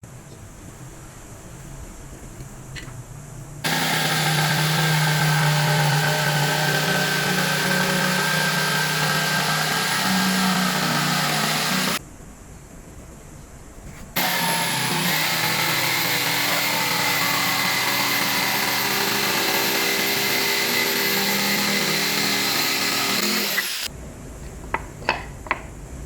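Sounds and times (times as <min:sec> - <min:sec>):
power tool motor whining: 0:03.6 - 0:12.0, 0:14.2 - 0:23.9.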